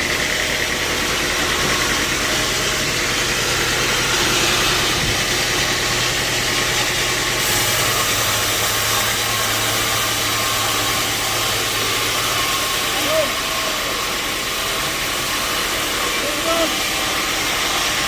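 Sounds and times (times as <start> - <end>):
motor hum: 0.0 - 18.0
machinery hiss: 7.4 - 14.0.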